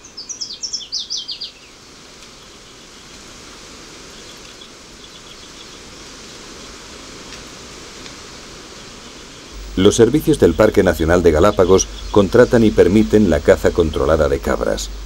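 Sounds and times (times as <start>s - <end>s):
songbird singing: 0.0s - 3.2s, 4.0s - 7.4s, 8.7s - 15.0s
outdoor background hiss: 0.0s - 15.0s
faint high chirps: 9.5s - 14.7s.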